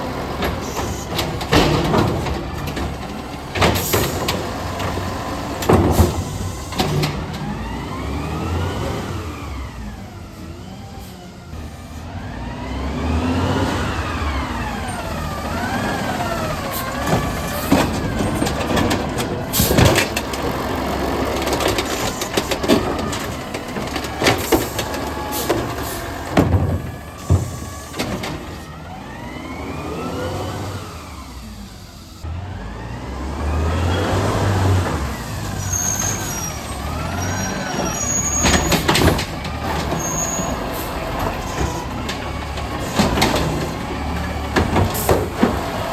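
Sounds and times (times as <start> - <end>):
loud metallic clanks and bangs: 0.0 - 7.7, 15.1 - 28.7, 34.7 - 45.9
garbage truck engine revving: 0.0 - 45.9.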